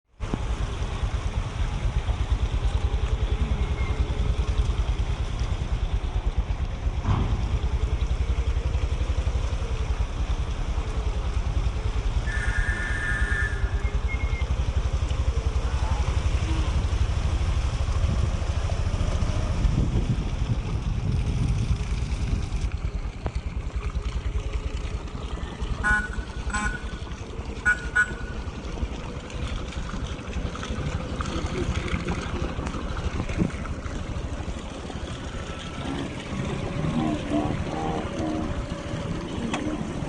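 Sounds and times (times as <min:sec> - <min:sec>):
road traffic rumble: 0:00.0 - 0:40.0
vehicle horn: 0:12.2 - 0:13.9, 0:25.8 - 0:27.0, 0:27.6 - 0:28.4.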